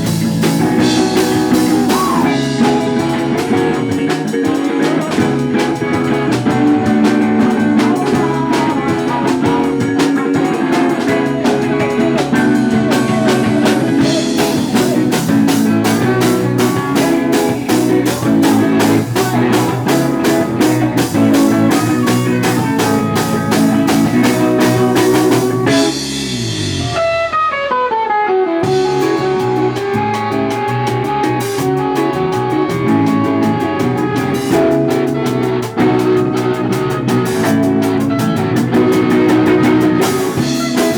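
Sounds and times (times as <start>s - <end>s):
fast hi-hat rhythm: 0.0s - 26.8s
live rock band playing: 0.0s - 40.9s.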